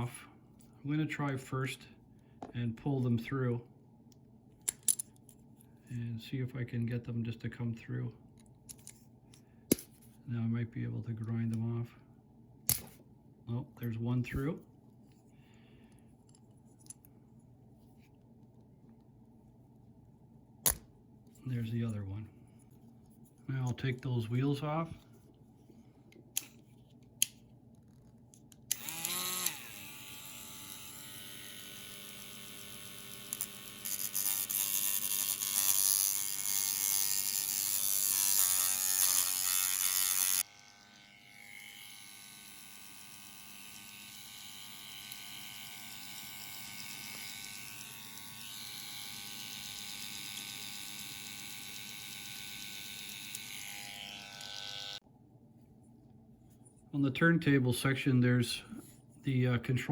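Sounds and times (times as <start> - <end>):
rotary tool grinding metal: 28.7 - 55.0
rotary tool running: 28.7 - 55.0.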